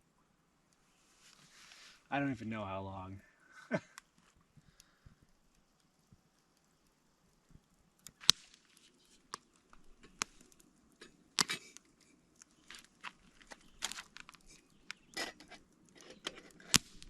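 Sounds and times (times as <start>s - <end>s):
rustling: 0.8s - 2.1s, 7.5s - 17.0s.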